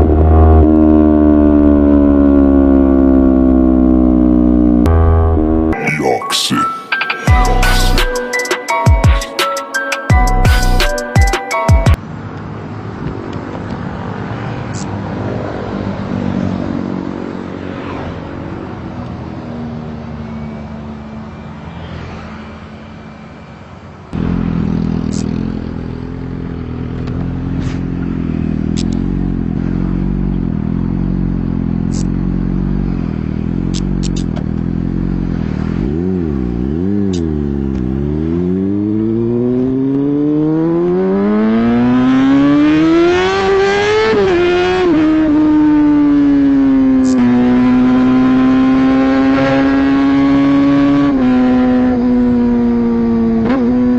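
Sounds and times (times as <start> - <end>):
motorcycle engine running: 24.1 - 53.9
sharp clicks: 33.7 - 34.5.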